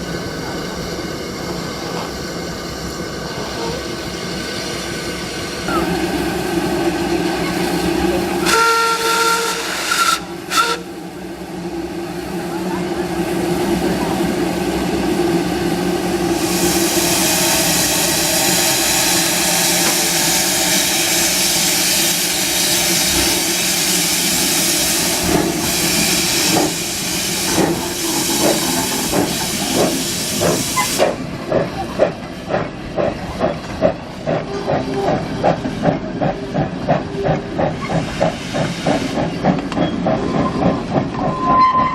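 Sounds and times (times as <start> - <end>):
loud hiss of steam: 0.0 - 11.1, 12.2 - 31.3, 38.0 - 39.2
steam locomotive chuffing: 0.0 - 41.9
steam locomotive whistle: 8.4 - 11.0.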